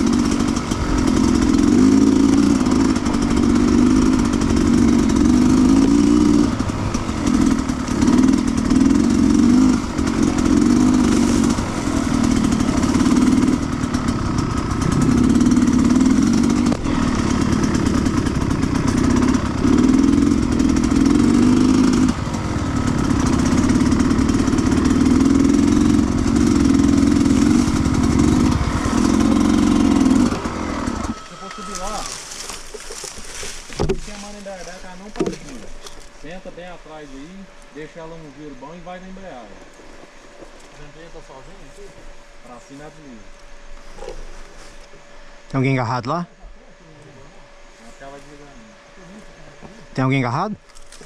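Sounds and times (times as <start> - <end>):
motorcycle engine revving: 0.0 - 45.8.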